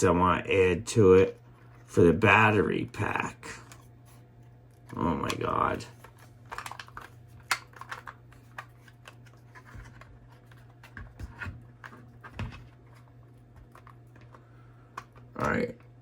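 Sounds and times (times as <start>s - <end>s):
plastic pieces clicking together: 6.5s - 10.0s.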